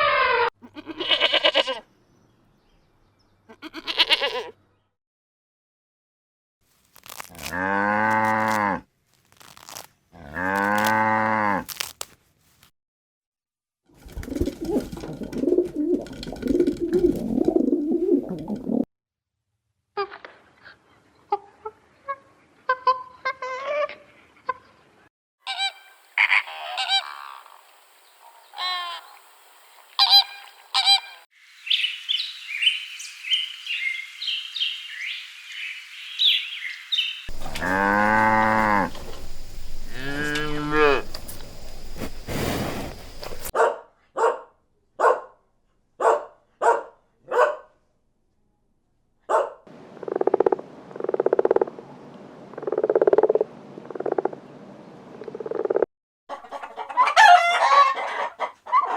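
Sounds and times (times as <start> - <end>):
long pitched animal calls: 25.5 - 29.2, 37.3 - 43.5
repeated animal calls: 25.5 - 29.2, 29.9 - 31.2, 37.3 - 43.5
high chirping: 25.5 - 43.5
short honking calls: 37.3 - 43.5.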